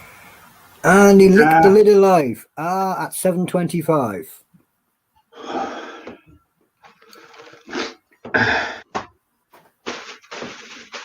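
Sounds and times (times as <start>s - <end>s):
person coughing and gasping: 7.7s - 8.9s.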